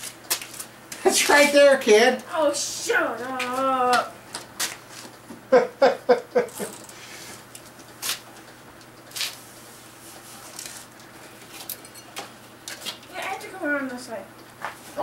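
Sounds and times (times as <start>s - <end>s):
person laughing or grunting: 5.5s - 6.8s.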